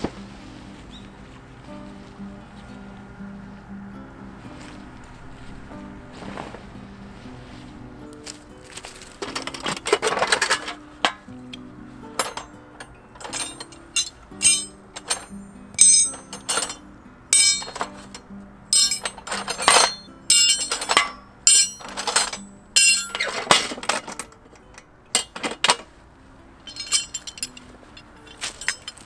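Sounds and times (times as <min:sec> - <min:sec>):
metallic clinks and clatter: 0:08.3 - 0:25.9, 0:26.6 - 0:29.0.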